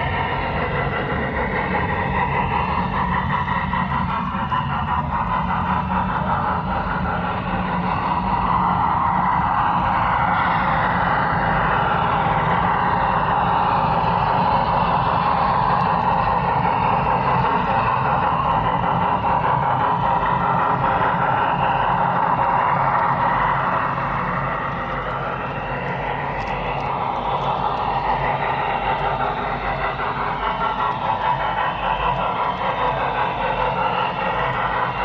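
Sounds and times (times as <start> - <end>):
model train running on track: 0.0 - 35.0.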